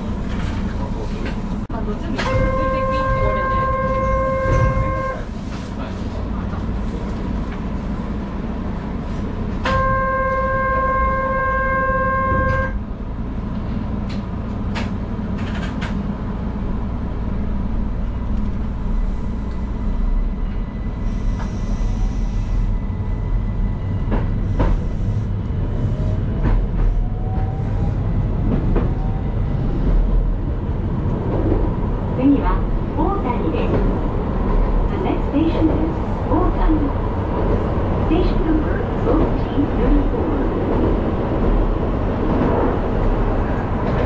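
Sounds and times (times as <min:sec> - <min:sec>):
low hum of standing train: 0:00.0 - 0:44.0
train horn: 0:02.2 - 0:05.4, 0:09.6 - 0:12.8.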